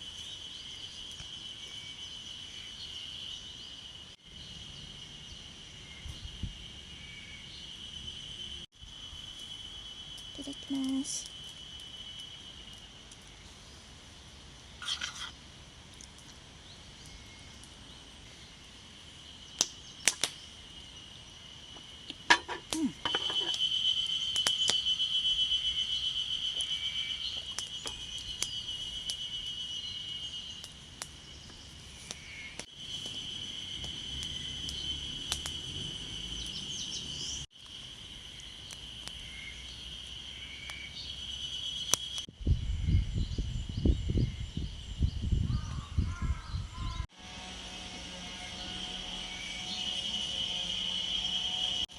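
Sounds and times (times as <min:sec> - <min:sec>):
wind rumble on microphone: 0:05.9 - 0:06.8, 0:42.3 - 0:47.0
high-pitched insect buzz: 0:47.1 - 0:51.9.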